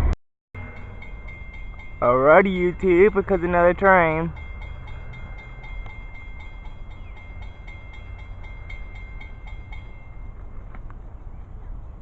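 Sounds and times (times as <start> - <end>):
train rumbling past: 0.0 - 12.0
faint high ringing pulse: 0.6 - 2.0.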